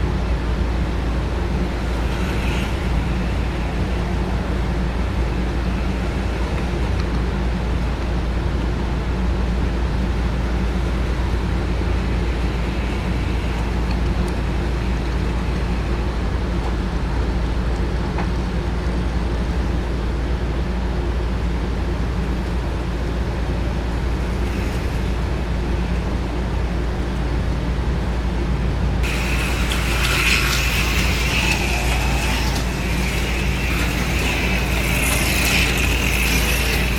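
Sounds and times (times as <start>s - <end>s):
model train motors humming: 0.0s - 36.9s
higher rattling whir: 28.8s - 36.9s.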